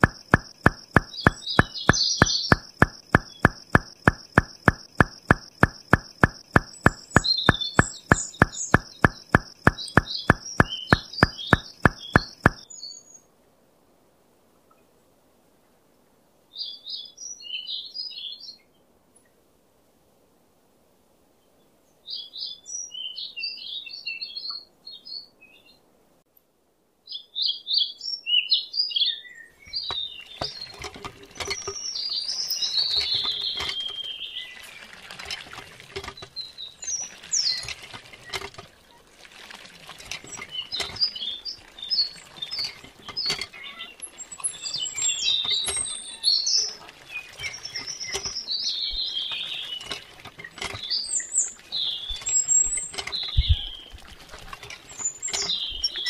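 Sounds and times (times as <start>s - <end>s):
hand pump clattering: 0.0s - 12.6s, 29.7s - 34.2s, 35.0s - 38.8s, 39.8s - 46.1s, 47.3s - 56.0s
water splashing into pond: 0.0s - 12.7s, 29.7s - 56.0s
small birds chirping: 0.0s - 13.3s, 27.1s - 35.3s, 36.1s - 39.1s, 40.1s - 56.0s.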